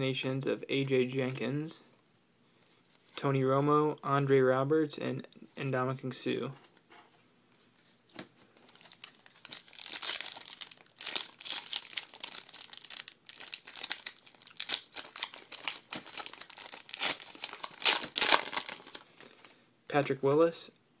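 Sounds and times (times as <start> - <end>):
wrapper crinkling and tearing: 8.6 - 19.5.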